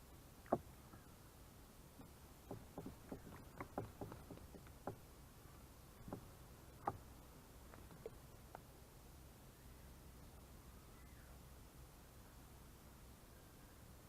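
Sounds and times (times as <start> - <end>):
bird splashing in bird bath: 2.4 - 5.0.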